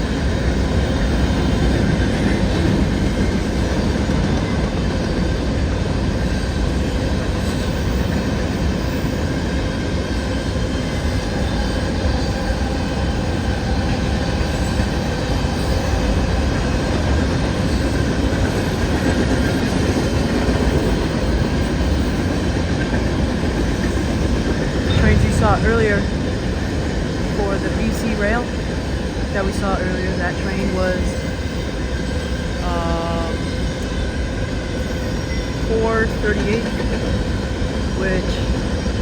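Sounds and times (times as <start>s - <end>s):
freight train wheels on rail: 0.0s - 39.0s.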